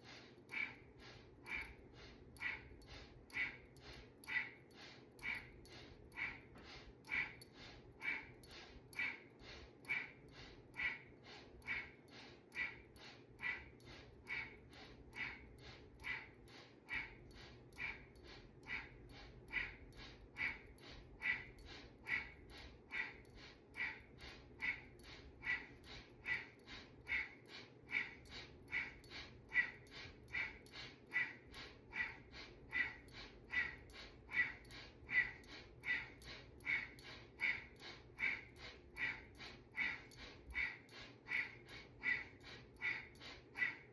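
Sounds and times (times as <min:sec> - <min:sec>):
rapid breathing through nose: 0:00.0 - 0:43.9.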